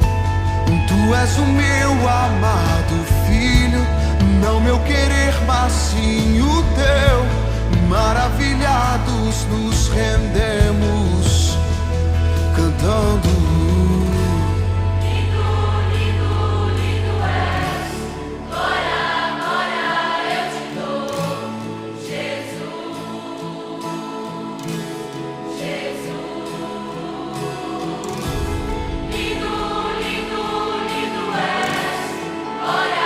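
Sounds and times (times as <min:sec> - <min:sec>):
heavy bass: 0:00.0 - 0:18.5, 0:28.3 - 0:31.2
choir singing worship song: 0:00.0 - 0:33.0.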